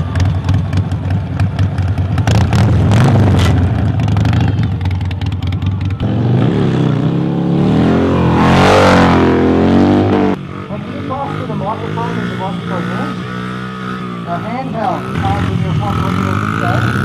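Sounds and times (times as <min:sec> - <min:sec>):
engine running hard with crackle: 0:00.0 - 0:07.4
engine revving: 0:00.0 - 0:17.0.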